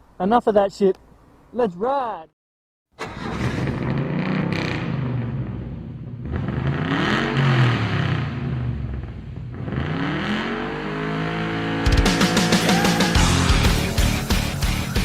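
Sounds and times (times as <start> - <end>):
rock music with guitar: 11.8 - 15.0.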